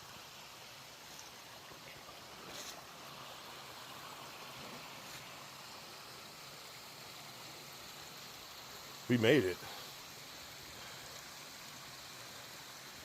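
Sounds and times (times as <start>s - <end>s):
stream water flowing: 0.0s - 13.0s.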